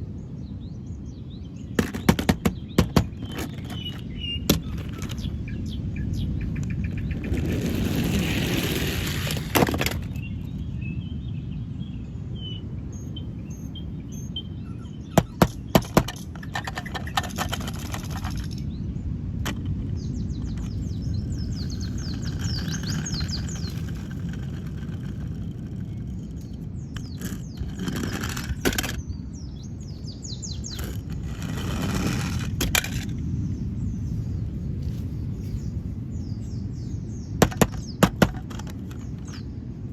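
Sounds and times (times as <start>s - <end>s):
birds chirping: 0.0s - 39.9s
steady low rumble: 17.7s - 38.0s.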